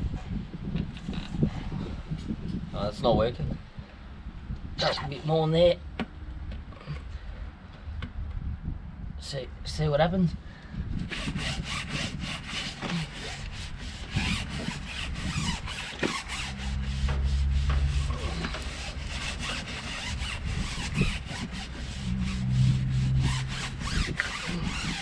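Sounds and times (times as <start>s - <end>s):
mitt scrubbing rubber tyre: 11.1s - 25.0s
low hum: 13.4s - 24.9s.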